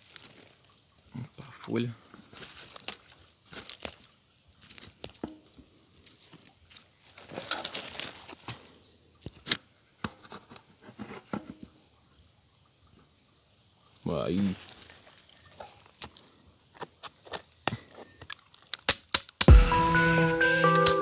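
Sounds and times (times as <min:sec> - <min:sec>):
dry leaves rustling: 0:02.3 - 0:05.0, 0:06.7 - 0:08.4.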